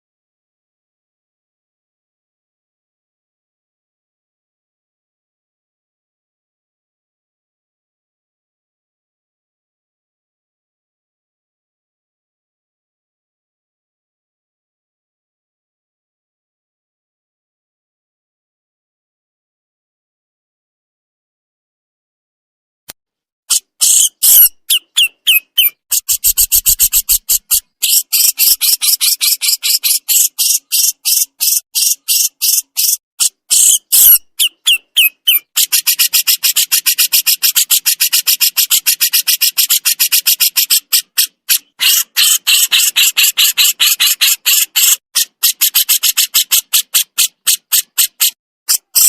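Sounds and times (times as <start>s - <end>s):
songbird harsh rasping calls: 23.5s - 49.0s.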